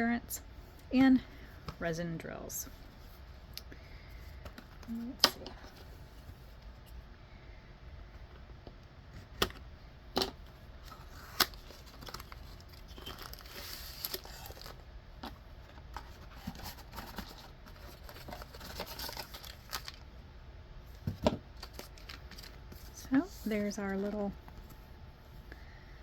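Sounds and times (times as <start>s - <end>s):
paper tearing and crinkling: 10.9s - 14.8s.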